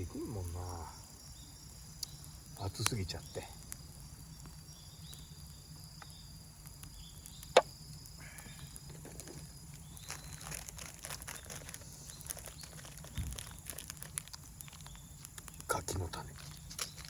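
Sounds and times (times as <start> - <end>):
high insect trill: 0.0 - 17.0
wood fire crackling: 0.0 - 17.0
sharp pop of fire: 6.8 - 9.4.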